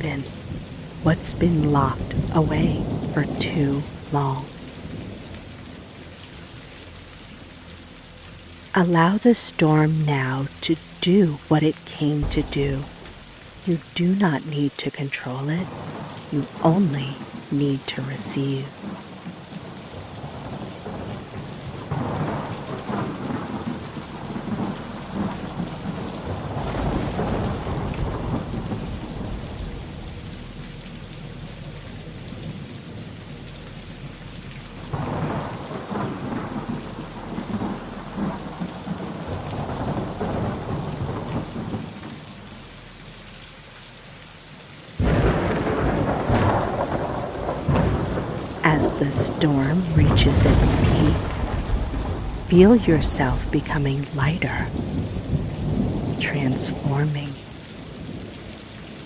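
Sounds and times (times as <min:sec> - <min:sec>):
loud thunderclap: 0:00.0 - 0:05.9, 0:12.2 - 0:13.7, 0:18.8 - 0:30.6, 0:34.9 - 0:42.3, 0:45.0 - 0:53.6, 0:54.5 - 0:56.9
steady rain: 0:00.0 - 0:59.0
rolling thunder: 0:00.2 - 0:07.0, 0:12.2 - 0:13.7, 0:15.7 - 0:16.3, 0:18.8 - 0:42.9, 0:45.0 - 0:53.6, 0:54.6 - 0:56.8.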